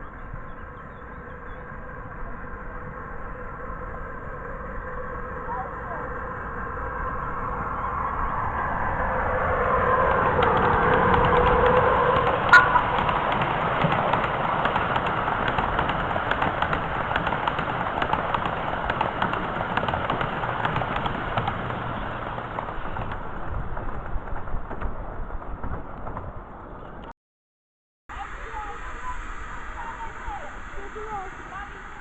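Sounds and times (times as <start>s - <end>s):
steady squealing tone: 0.0s - 13.4s
miniature railway train running past: 0.0s - 27.1s, 28.1s - 32.0s
wheels clicking over track: 0.0s - 27.1s.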